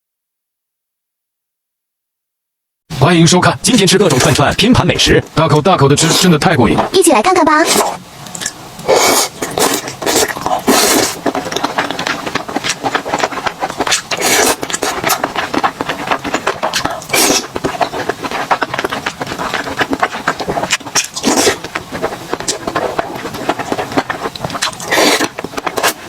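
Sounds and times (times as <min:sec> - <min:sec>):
wet chewing clicks: 0:03.6 - 0:26.0
crunching bite: 0:07.9 - 0:26.0.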